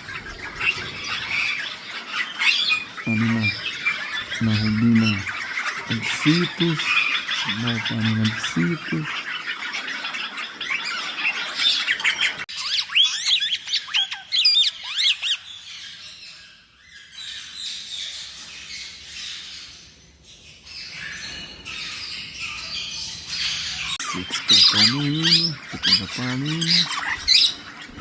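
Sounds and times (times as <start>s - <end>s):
parakeets squawking and chattering: 0.0s - 16.0s, 24.0s - 28.0s
whistled bird calls: 0.0s - 16.0s, 24.0s - 28.0s.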